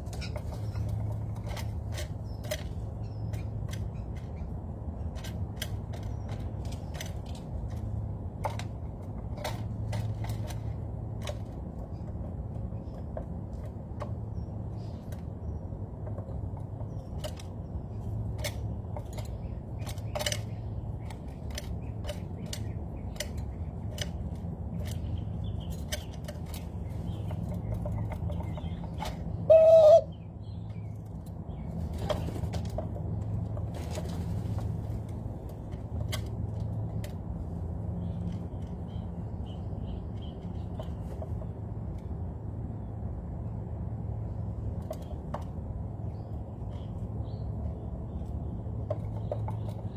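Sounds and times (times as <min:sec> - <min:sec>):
loud bird call: 0:29.5 - 0:30.2.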